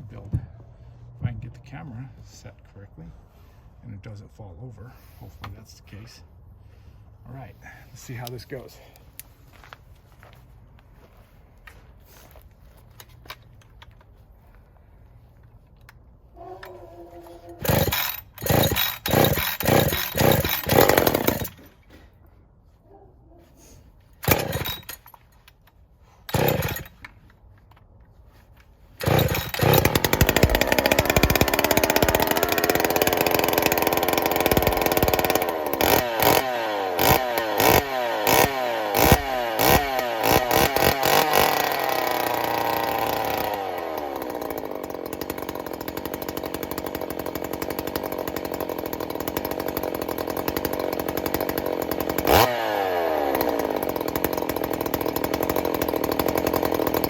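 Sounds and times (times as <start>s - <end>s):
chainsaw revving and idling: 16.7s - 21.8s, 24.2s - 25.1s, 26.3s - 27.0s, 29.0s - 57.0s.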